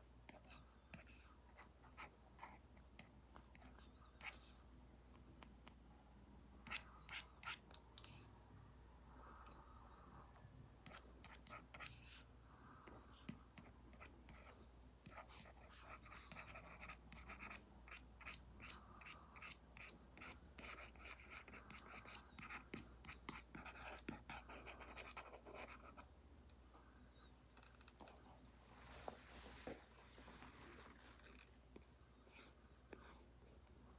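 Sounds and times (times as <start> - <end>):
stylus scratching on a tablet: 0.3 - 4.5, 6.7 - 8.3, 10.8 - 26.1.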